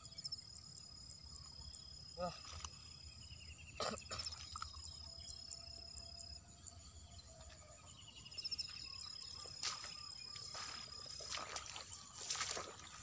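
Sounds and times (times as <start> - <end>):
rustles and clicks of grass: 9.4 - 13.0.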